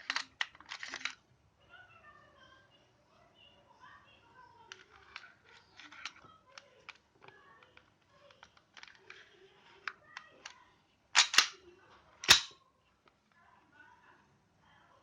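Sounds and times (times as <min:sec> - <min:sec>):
pistol parts clicking and knocking: 0:00.0 - 0:01.2, 0:11.2 - 0:11.6, 0:12.2 - 0:12.6.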